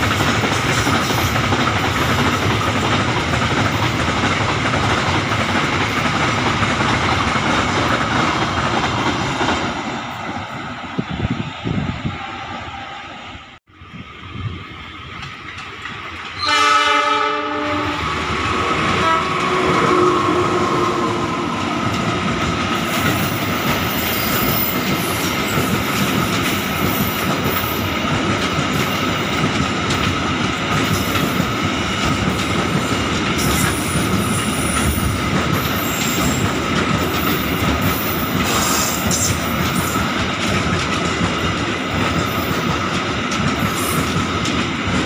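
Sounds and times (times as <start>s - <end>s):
freight train rumbling past: 0.0s - 45.0s
locomotive horn blast: 16.4s - 21.2s.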